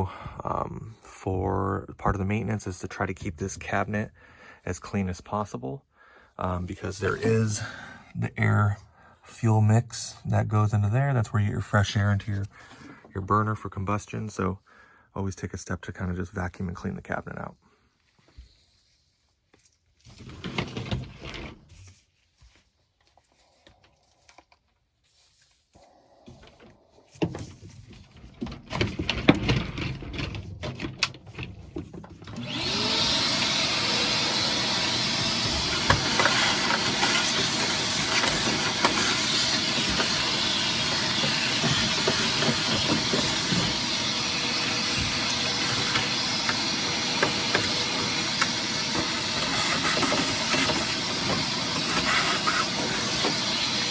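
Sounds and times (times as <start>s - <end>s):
vacuum cleaner running: 6.8s - 7.9s, 28.7s - 53.9s
handling knocks and clatter: 27.1s - 32.3s.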